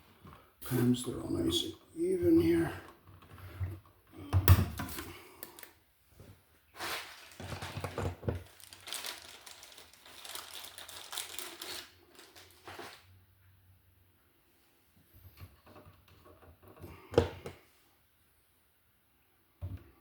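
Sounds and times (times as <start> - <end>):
wires scraping and crinkling: 6.7 - 13.1.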